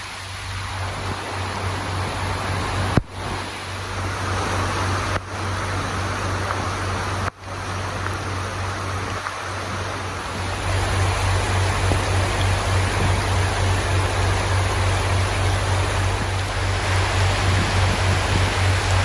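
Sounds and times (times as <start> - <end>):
heavy rain pouring: 0.0 - 19.0
low hum: 0.0 - 19.0.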